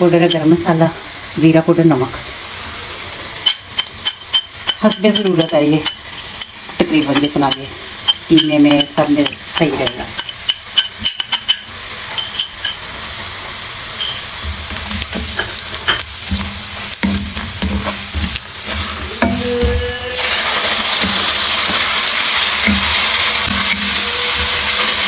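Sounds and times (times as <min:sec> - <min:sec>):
loud sizzle of paste in oil: 0:00.0 - 0:25.0
onions sizzling in oil: 0:00.0 - 0:25.0
wooden spoon scraping pan: 0:14.0 - 0:25.0.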